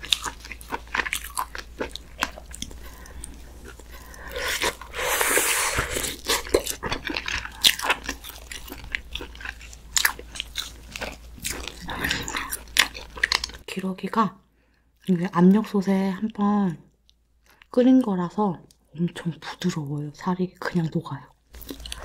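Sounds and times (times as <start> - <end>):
chewing and mouth sounds: 0.0 - 13.7, 21.5 - 22.0.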